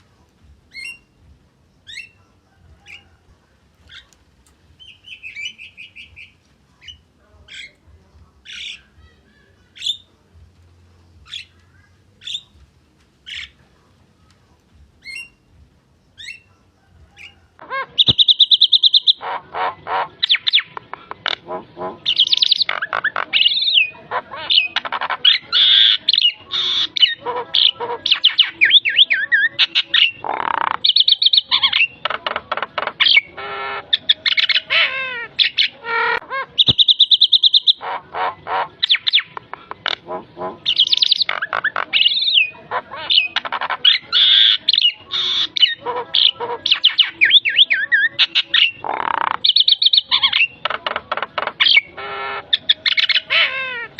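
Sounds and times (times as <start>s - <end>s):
myna bird singing: 0.0s - 53.9s.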